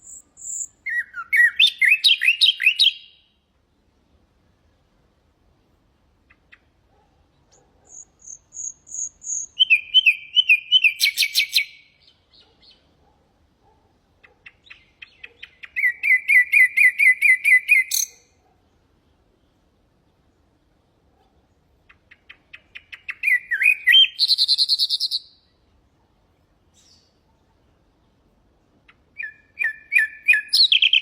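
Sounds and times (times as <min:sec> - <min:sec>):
nightingale singing: 0:00.0 - 0:03.4, 0:07.4 - 0:12.9, 0:14.2 - 0:18.4, 0:21.8 - 0:25.6, 0:26.7 - 0:27.3, 0:28.9 - 0:31.0.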